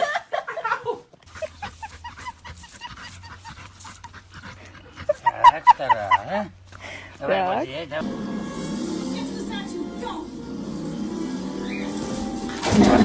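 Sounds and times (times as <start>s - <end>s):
dog panting: 1.2s - 7.9s
dog whining: 11.1s - 13.0s.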